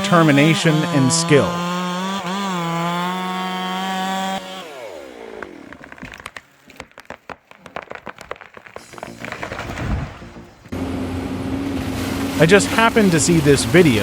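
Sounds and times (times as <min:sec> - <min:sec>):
chainsaw whining at full throttle: 0:00.0 - 0:06.4, 0:10.7 - 0:14.0
sharp crackles and snaps: 0:05.4 - 0:10.4.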